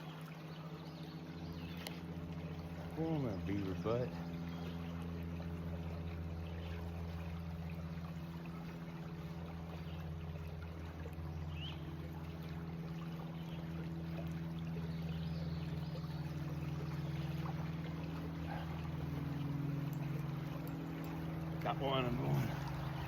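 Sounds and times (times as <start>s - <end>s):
creek water running: 0.0s - 23.0s
low engine drone: 0.0s - 23.0s.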